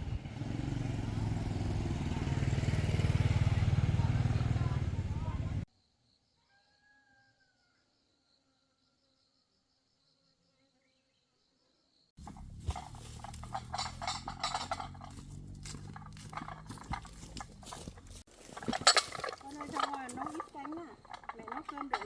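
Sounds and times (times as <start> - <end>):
faint insect chirping: 5.7 - 12.2
low hum: 12.2 - 18.2
clattering and rustling: 12.2 - 22.0.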